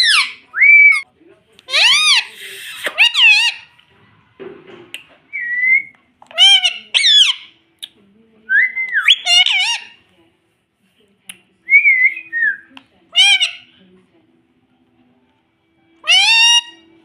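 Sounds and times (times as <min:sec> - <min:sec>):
parrot whistling: 0:00.0 - 0:01.0, 0:16.0 - 0:16.9.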